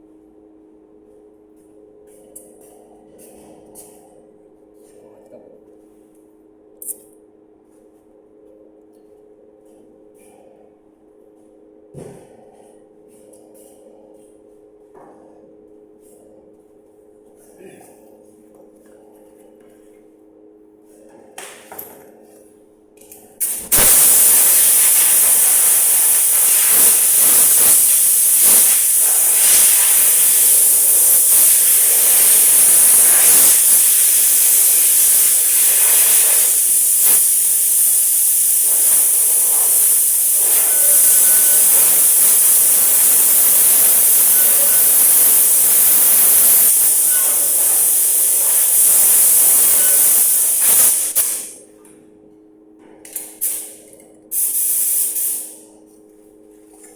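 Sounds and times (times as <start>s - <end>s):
spray gun hissing: 23.4s - 51.5s, 54.3s - 55.5s.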